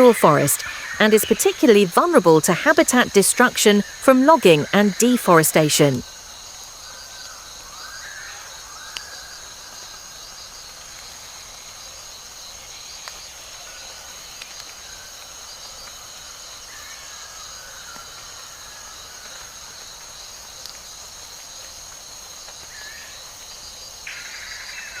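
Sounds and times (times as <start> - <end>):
faint bird calls: 0.0 - 2.6
insects buzzing and trilling: 0.0 - 25.0.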